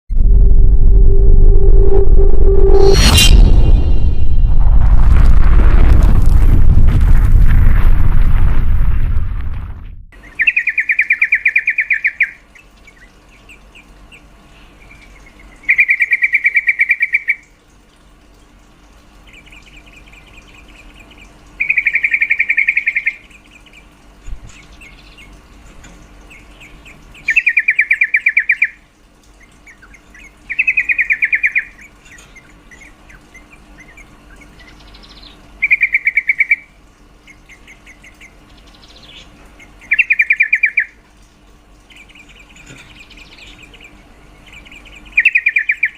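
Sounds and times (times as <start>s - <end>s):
soft bird chirps: 26.0s - 45.9s.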